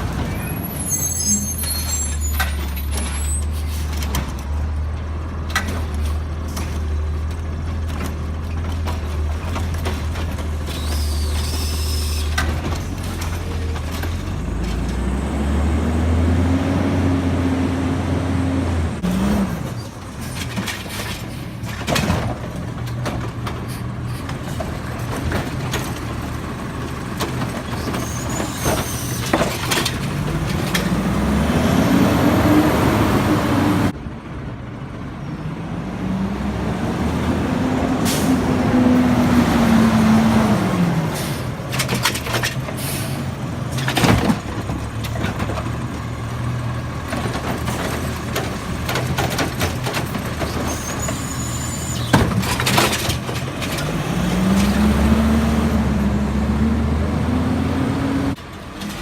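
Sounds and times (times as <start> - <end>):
garbage truck engine revving: 9.6 - 19.8, 25.0 - 34.0, 35.6 - 42.2, 42.8 - 58.4.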